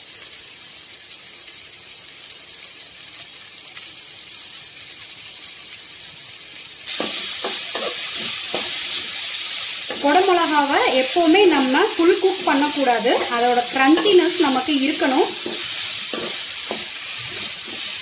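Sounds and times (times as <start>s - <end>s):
vegetables sizzling in hot oil: 0.0s - 18.0s
spatula scraping a pan: 6.9s - 10.4s, 12.2s - 18.0s.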